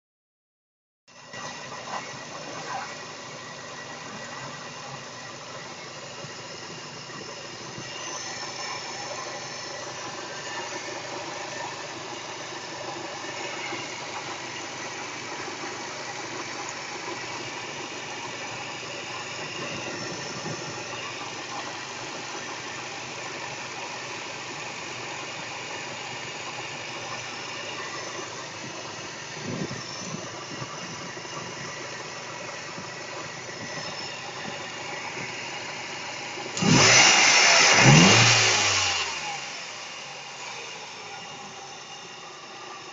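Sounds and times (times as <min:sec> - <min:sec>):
car engine idling and revving: 0:01.1 - 0:42.9.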